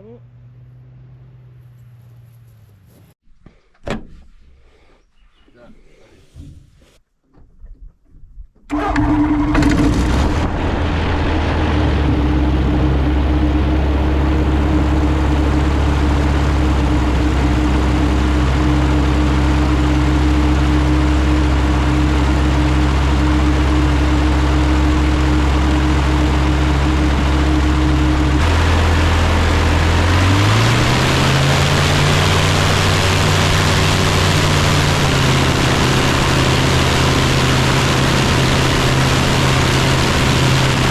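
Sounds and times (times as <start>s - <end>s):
propeller engine starting and idling: 8.6s - 40.9s.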